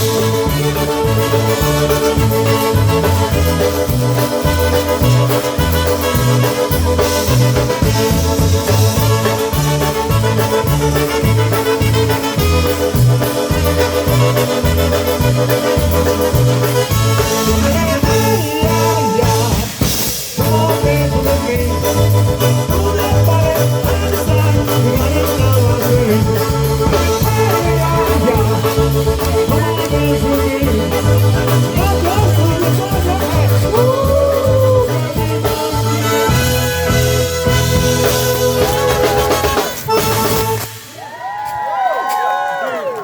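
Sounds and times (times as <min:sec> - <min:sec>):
bouncing bass line: 0:00.0 - 0:40.6
polka band playing: 0:00.0 - 0:41.2.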